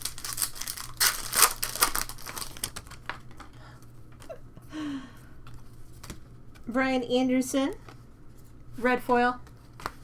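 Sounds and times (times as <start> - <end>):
plastic packaging crinkling: 0.0 - 3.4.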